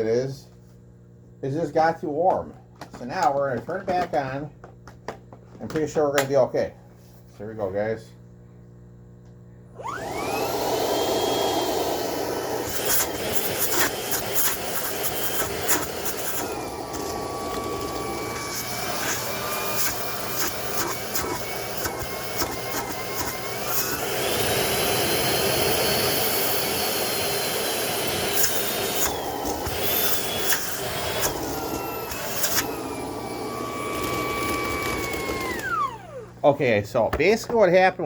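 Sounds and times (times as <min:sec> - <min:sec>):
vacuum motor whining: 0:09.7 - 0:37.7.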